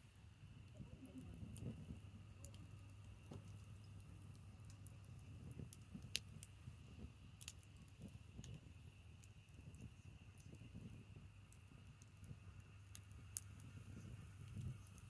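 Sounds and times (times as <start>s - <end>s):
faint branch fire crackling: 0.0s - 15.0s.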